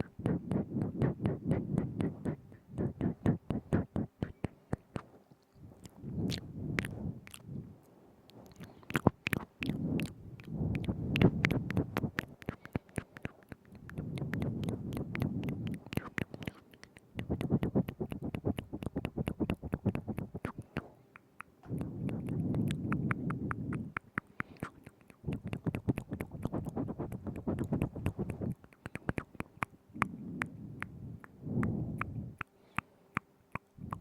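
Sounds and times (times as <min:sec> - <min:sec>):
wet mouth clicks and smacks: 0:00.0 - 0:07.6, 0:08.3 - 0:34.0
low muffled sound: 0:21.6 - 0:24.0, 0:29.2 - 0:32.4.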